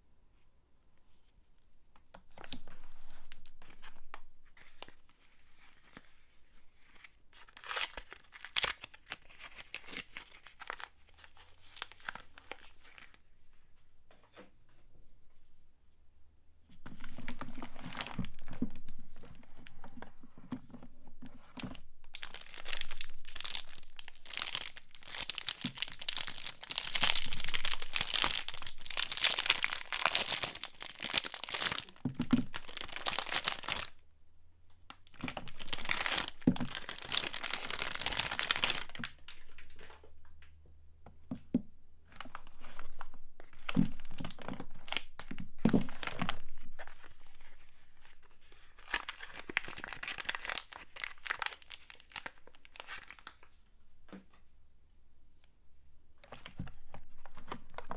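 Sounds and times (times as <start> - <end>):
wrappers crinkling and tearing: 6.8 - 13.2, 21.6 - 34.0, 35.0 - 39.9, 42.2 - 53.5.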